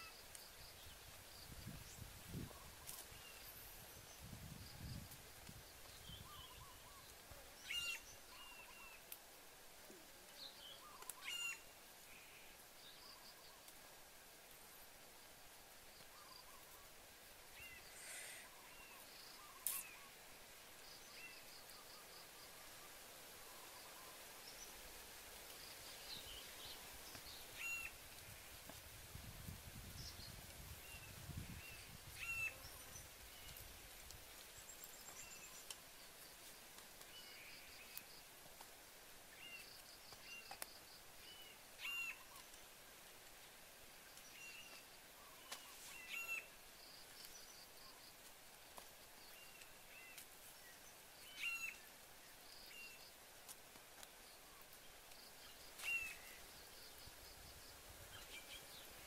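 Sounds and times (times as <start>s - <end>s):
faint outdoor background: 0.0s - 59.0s
soft bird chirps and trills: 10.4s - 13.8s, 15.8s - 20.2s, 39.2s - 43.0s.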